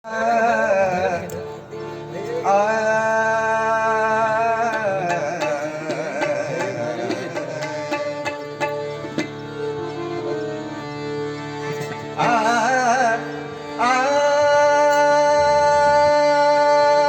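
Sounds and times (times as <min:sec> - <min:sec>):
person singing: 0:00.0 - 0:08.8, 0:12.2 - 0:17.0
tabla-like drum strokes: 0:05.0 - 0:09.4.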